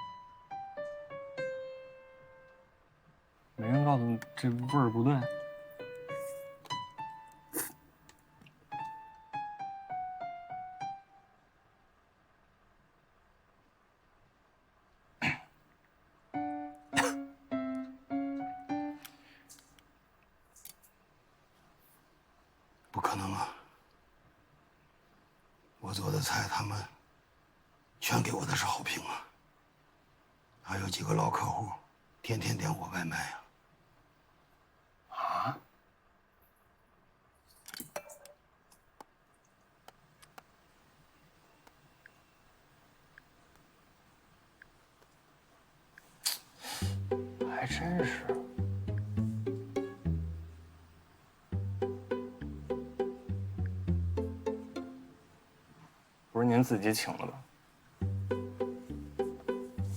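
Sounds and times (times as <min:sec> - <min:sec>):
short steady music notes: 0:16.4 - 0:19.1, 0:46.8 - 0:55.2, 0:58.0 - 0:59.9
person coughing harshly: 0:17.0 - 0:17.3.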